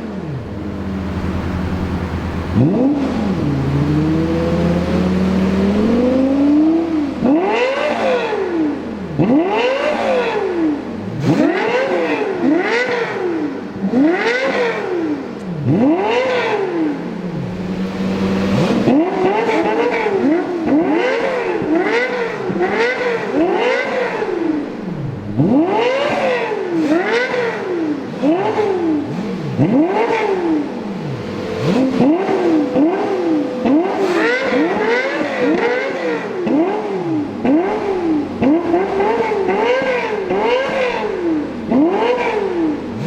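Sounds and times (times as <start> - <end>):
car engine revving: 0.0 - 43.0
quick engine rev blips: 0.4 - 8.3, 28.3 - 43.0.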